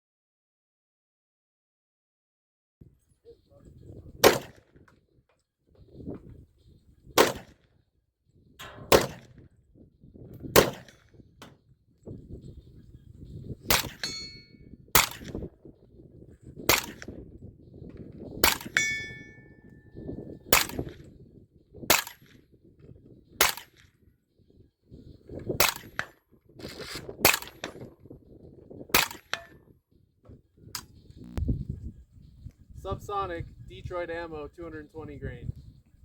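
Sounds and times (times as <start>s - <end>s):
rifle shots: 4.2s - 4.6s, 7.2s - 7.6s, 8.8s - 9.4s, 10.6s - 11.0s, 13.7s - 14.4s, 15.0s - 15.4s, 16.7s - 17.1s, 20.5s - 20.9s, 21.9s - 22.2s
brief metallic ring: 14.0s - 14.6s, 18.7s - 19.9s.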